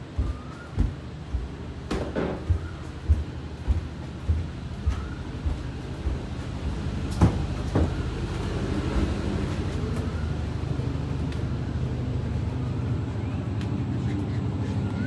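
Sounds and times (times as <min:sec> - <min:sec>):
boat engine running low: 0:00.0 - 0:15.0
sharp knocks: 0:01.9 - 0:06.2.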